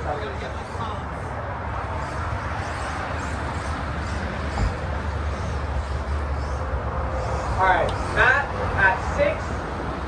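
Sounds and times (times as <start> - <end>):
outdoor rumble and hiss: 0.0 - 10.0
low thump: 4.6 - 4.9.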